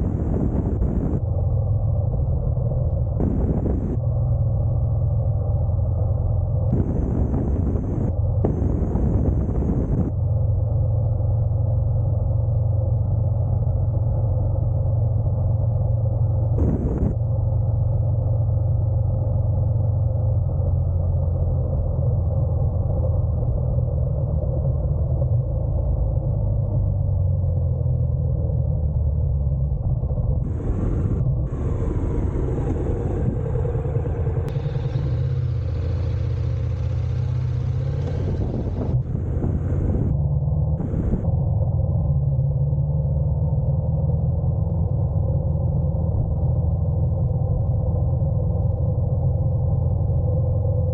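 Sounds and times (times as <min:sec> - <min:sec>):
motorcycle engine rumbling: 0:00.0 - 0:01.2, 0:03.2 - 0:04.0, 0:06.7 - 0:10.1, 0:16.6 - 0:17.2, 0:30.4 - 0:41.3
wind noise on microphone: 0:00.0 - 0:04.4, 0:06.7 - 0:10.5, 0:16.5 - 0:17.2, 0:28.6 - 0:41.8
riding noise hiss: 0:06.7 - 0:10.1, 0:16.6 - 0:17.2, 0:30.4 - 0:40.1, 0:40.8 - 0:41.3.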